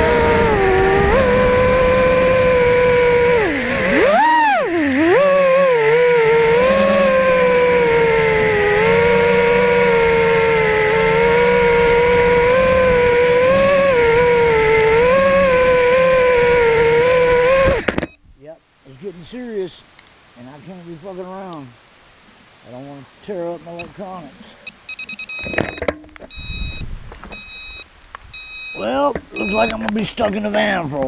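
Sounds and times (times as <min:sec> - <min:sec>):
drone propellers whining: 0:00.0 - 0:18.2, 0:23.8 - 0:27.8, 0:28.4 - 0:30.0.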